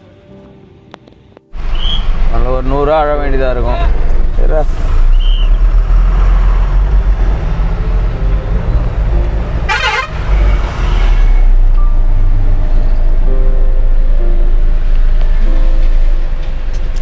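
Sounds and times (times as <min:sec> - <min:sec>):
low rumble of traffic: 0:00.0 - 0:17.0
vehicle horns honking: 0:09.6 - 0:11.8.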